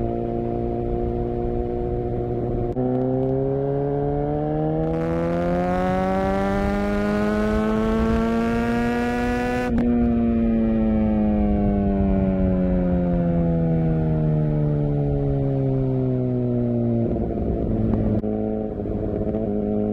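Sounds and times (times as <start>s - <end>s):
motorcycle engine revving: 0.0s - 10.2s, 17.0s - 19.9s.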